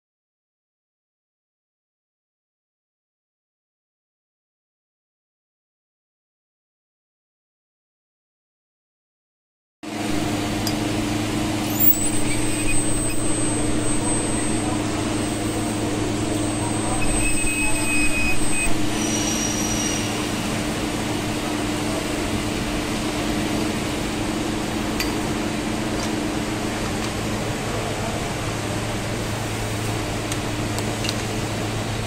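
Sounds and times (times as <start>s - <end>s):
machine hum: 9.9s - 32.0s
faint high-pitched whistle: 11.6s - 20.4s.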